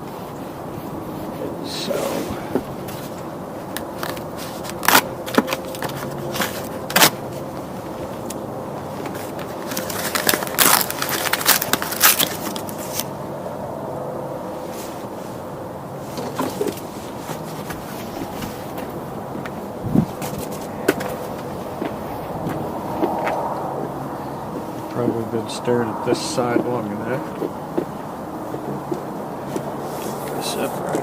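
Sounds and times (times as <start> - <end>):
packing material crinkling: 2.8 - 7.5, 9.0 - 13.1.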